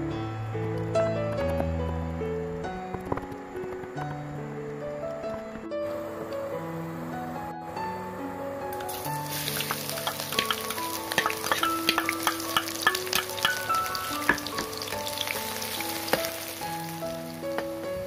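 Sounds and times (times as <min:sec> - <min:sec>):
food sizzling in hot oil: 0:08.8 - 0:17.9.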